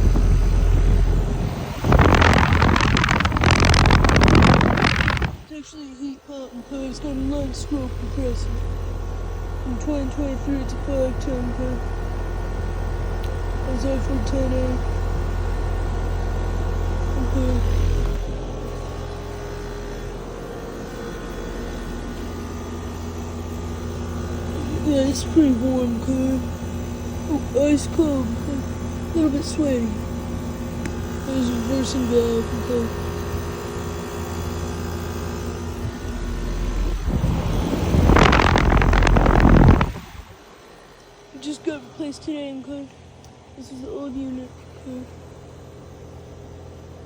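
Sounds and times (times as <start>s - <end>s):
rushing fluttering air noise: 0.0s - 5.5s, 35.6s - 40.5s
compressor hum: 0.0s - 47.0s
condenser fan rushing: 0.0s - 47.0s.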